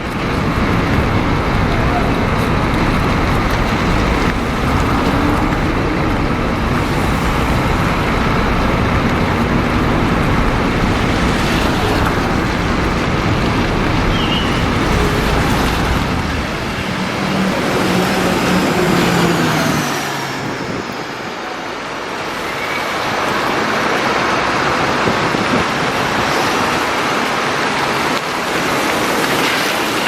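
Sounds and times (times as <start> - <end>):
bus engine hum: 0.0 - 30.0
tyre and traffic noise: 0.0 - 30.0.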